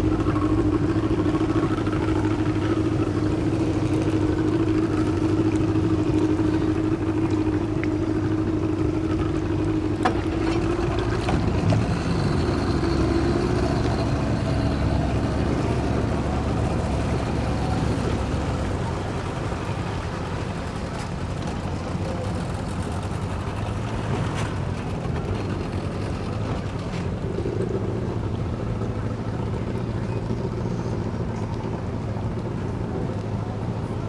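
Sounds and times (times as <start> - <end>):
boat engine humming: 0.0 - 34.0.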